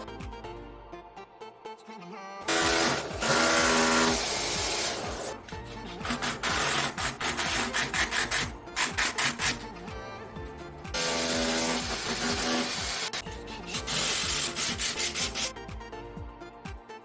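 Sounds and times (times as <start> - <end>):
tool rasping strokes: 2.5 - 10.0, 10.9 - 15.5.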